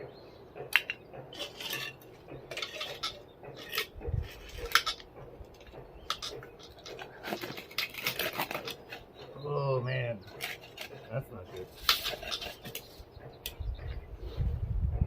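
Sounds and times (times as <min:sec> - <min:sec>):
metal clanks and rattles: 0:00.0 - 0:09.4, 0:10.2 - 0:14.0.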